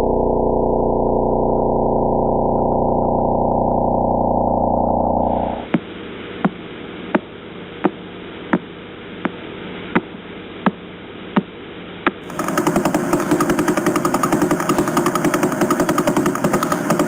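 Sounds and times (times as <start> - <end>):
static hiss: 5.3 - 12.2
fast full pulsing: 12.2 - 17.0.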